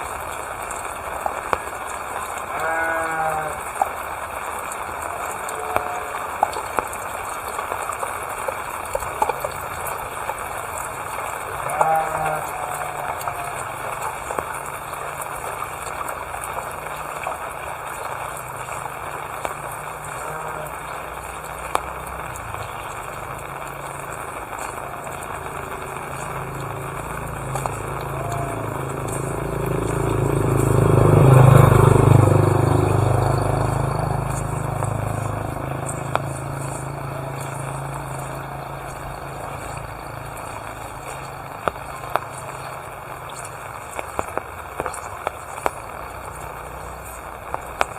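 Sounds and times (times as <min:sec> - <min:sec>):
dripping water: 0:00.0 - 0:47.9
motorbike passing by: 0:00.0 - 0:47.9
steady rainfall: 0:00.0 - 0:47.9.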